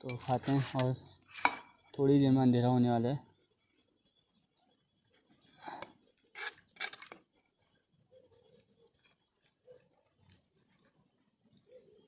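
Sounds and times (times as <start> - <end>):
utensil scraping cooking pot: 5.4 - 7.8.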